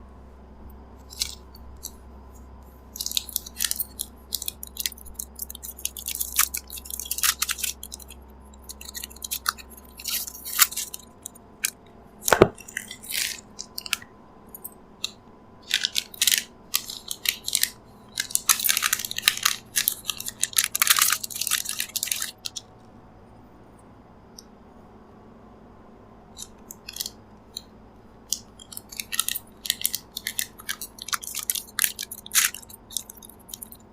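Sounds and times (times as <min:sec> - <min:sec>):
wrappers crinkling: 0:15.6 - 0:22.6, 0:28.8 - 0:33.8.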